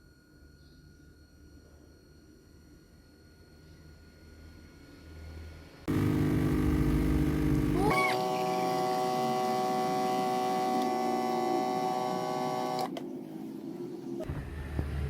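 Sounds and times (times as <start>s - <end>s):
appliance motor humming: 5.9s - 14.0s.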